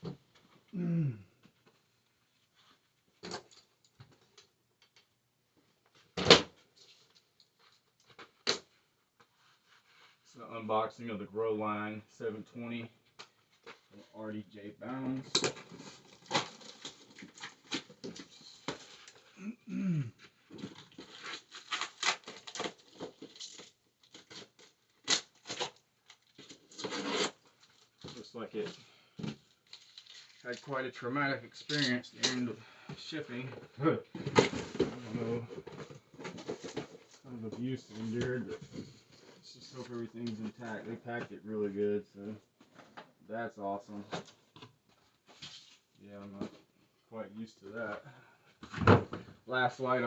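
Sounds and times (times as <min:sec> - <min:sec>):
cardboard tearing: 0:20.9 - 0:25.8, 0:26.4 - 0:27.5.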